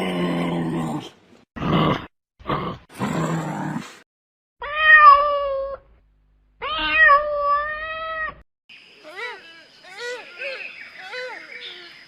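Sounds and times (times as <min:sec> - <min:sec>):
cat meowing: 0:04.6 - 0:05.8, 0:06.6 - 0:08.4.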